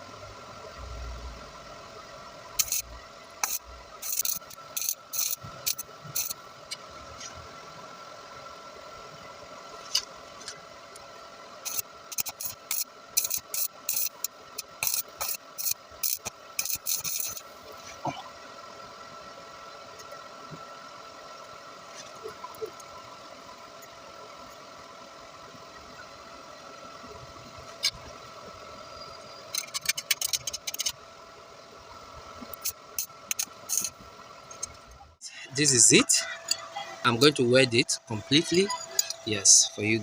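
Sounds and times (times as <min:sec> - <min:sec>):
steady background hum: 0:00.0 - 0:40.0
welder crackling: 0:02.6 - 0:06.8, 0:11.6 - 0:17.9, 0:32.4 - 0:34.9.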